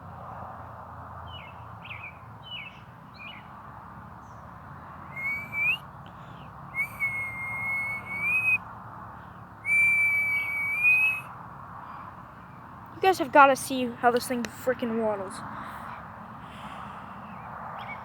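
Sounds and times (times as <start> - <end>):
long whistled notes: 5.1 - 5.8, 6.8 - 8.6, 9.7 - 11.2
birds chirping: 5.1 - 8.6.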